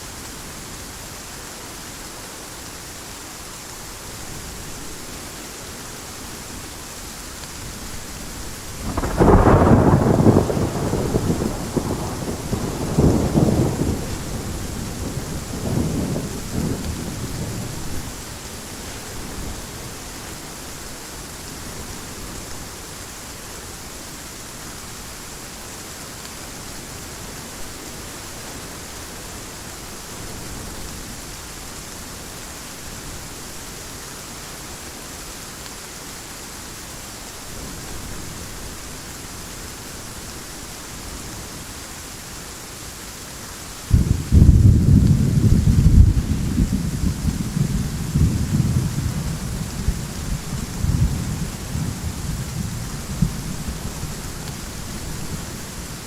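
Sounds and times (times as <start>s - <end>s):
heavy rain: 0.0s - 56.0s
thunder rolling: 8.7s - 17.9s, 43.9s - 54.2s.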